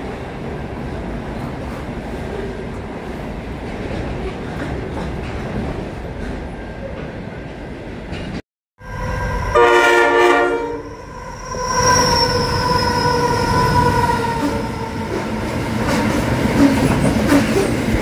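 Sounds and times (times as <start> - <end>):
locomotive horn blasts: 8.8 - 14.8.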